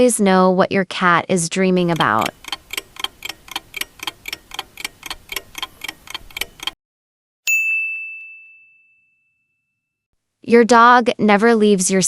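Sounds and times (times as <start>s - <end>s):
clock ticking: 1.8s - 6.8s
bell ding: 7.5s - 9.9s.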